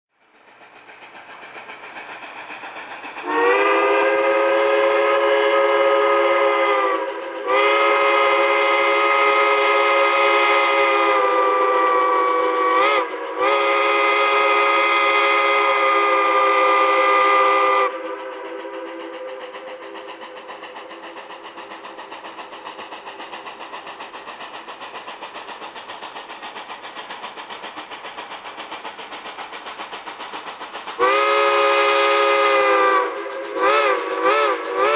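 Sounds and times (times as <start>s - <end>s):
train running noise: 0.1s - 34.9s
steam locomotive chime whistle: 3.2s - 20.2s, 31.0s - 34.9s.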